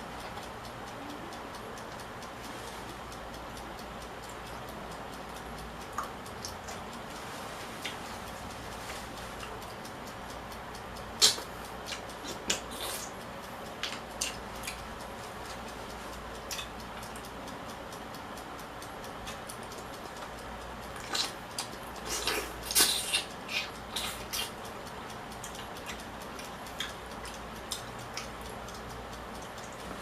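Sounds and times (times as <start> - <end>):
eating clicks and taps: 25.4 - 30.0.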